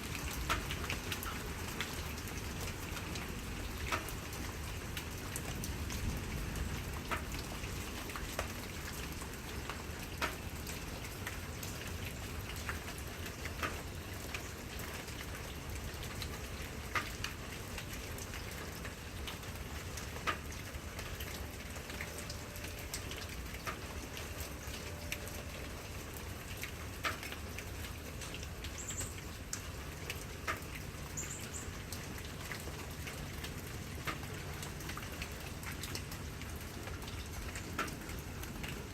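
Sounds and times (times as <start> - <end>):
rain falling: 0.0 - 38.9
drops ticking on a surface: 2.6 - 4.1, 9.7 - 11.4, 20.2 - 25.4, 28.2 - 31.6, 32.2 - 38.8.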